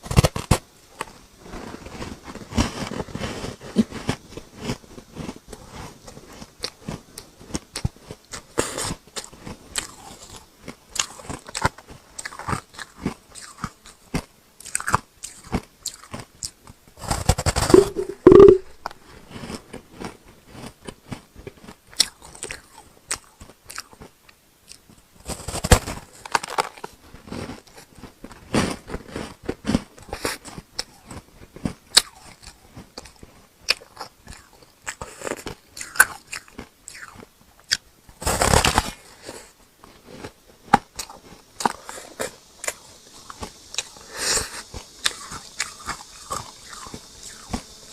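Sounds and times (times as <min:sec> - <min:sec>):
ice crunched between teeth: 0:33.7 - 0:39.0.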